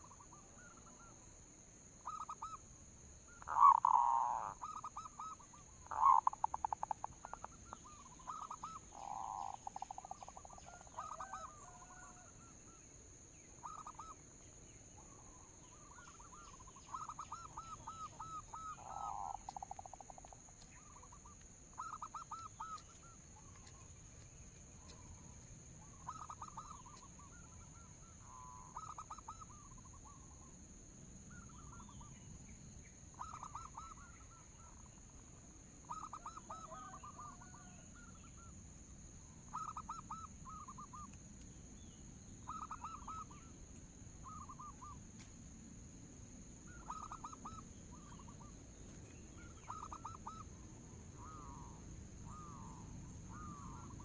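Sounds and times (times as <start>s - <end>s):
dove staccato cooing: 3.4s - 12.4s, 15.7s - 23.8s, 24.8s - 27.6s, 33.2s - 34.3s, 35.9s - 38.1s, 39.5s - 41.1s, 42.5s - 43.5s, 46.7s - 48.5s, 49.4s - 50.6s, 51.2s - 54.0s.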